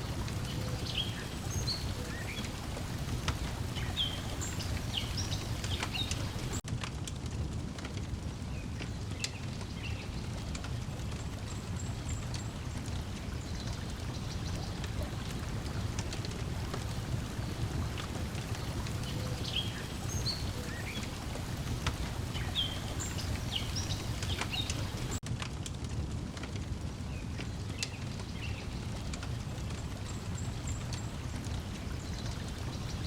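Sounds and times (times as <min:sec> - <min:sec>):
wood fire crackling and popping: 0:02.0 - 0:19.3, 0:21.1 - 0:31.9
lapping water: 0:13.5 - 0:25.2.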